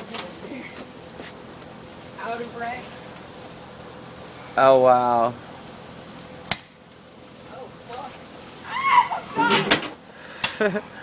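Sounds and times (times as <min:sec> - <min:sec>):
firework fuse hissing: 0:00.0 - 0:11.0
low voices: 0:09.0 - 0:09.8.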